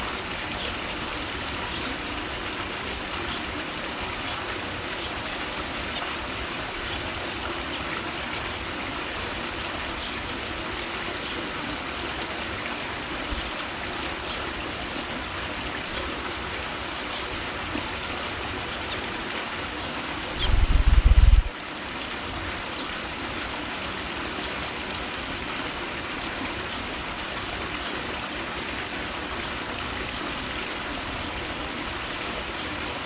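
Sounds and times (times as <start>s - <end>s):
steady rushing noise: 20.4s - 21.5s.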